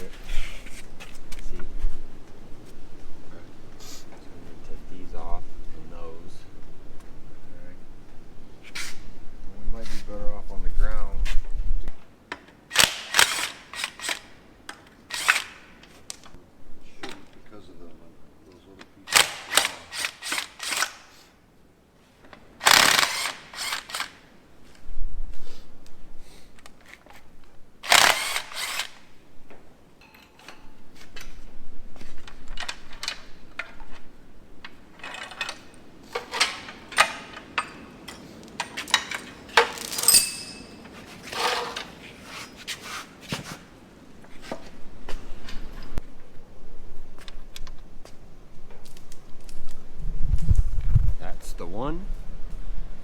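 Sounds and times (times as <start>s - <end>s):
power tool bursts: 12.7s - 14.3s, 15.1s - 15.8s, 19.1s - 21.2s, 22.6s - 24.3s, 27.8s - 29.1s
metal clinks and rattles of tools: 30.0s - 31.4s, 34.9s - 42.0s.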